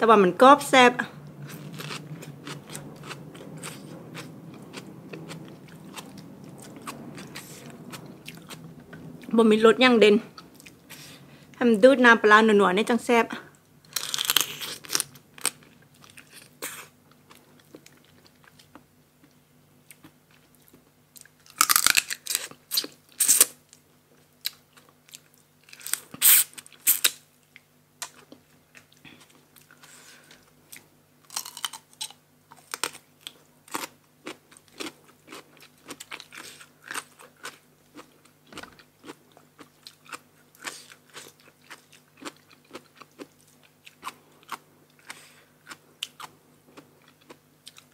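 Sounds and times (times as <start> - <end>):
faint steady hum: 0.0 - 47.9
crunching raw vegetables: 1.3 - 9.3, 13.8 - 18.8, 19.9 - 23.8, 28.0 - 47.9.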